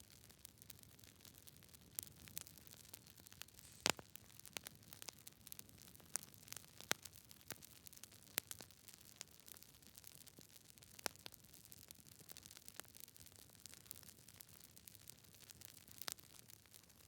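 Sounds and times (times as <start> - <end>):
campfire crackling: 0.1 - 16.8
fire hiss: 3.5 - 4.2.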